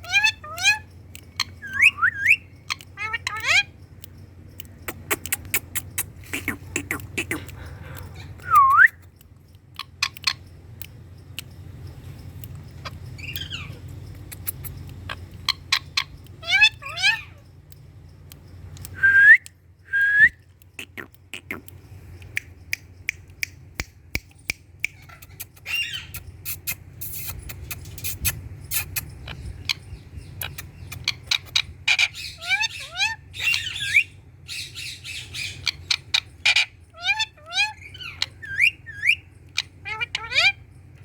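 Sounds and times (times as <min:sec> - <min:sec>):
parakeet squawking: 0:00.0 - 0:03.8, 0:12.8 - 0:17.4, 0:25.0 - 0:40.6
sharp clicks: 0:00.5 - 0:16.8, 0:17.4 - 0:31.7.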